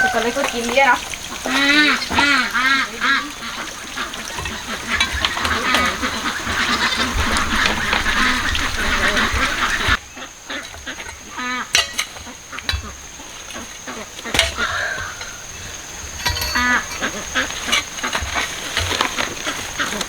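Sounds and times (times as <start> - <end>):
poultry honking calls: 0.0 - 13.0
crackling rustle: 0.0 - 20.0.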